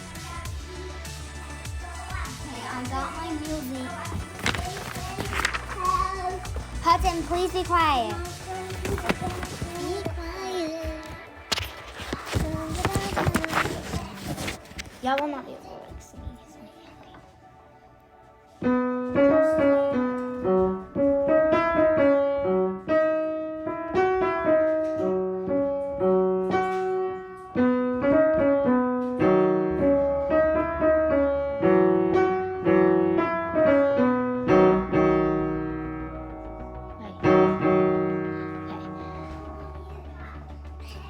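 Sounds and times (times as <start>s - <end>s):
piano piece: 17.4s - 40.0s.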